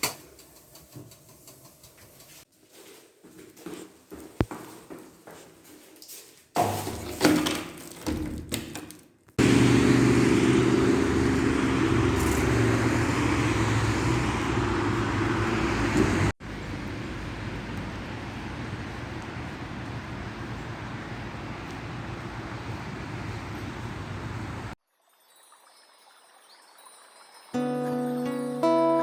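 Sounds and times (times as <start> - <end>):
distant traffic hiss: 9.4 - 24.8
road noise: 9.4 - 24.8
vehicle engine hum: 9.4 - 24.8.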